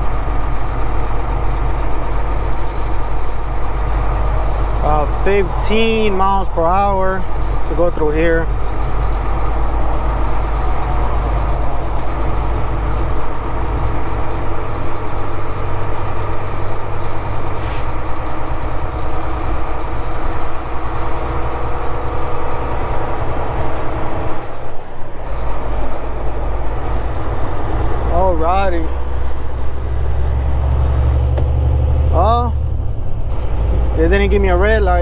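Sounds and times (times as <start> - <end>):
truck diesel engine running: 0.0 - 35.0
short air hiss: 17.6 - 18.0.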